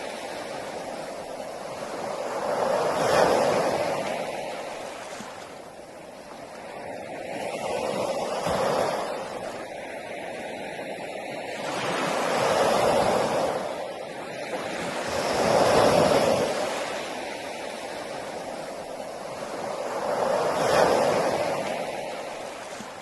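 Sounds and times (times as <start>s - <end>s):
sea waves breaking on beach: 0.0s - 23.0s.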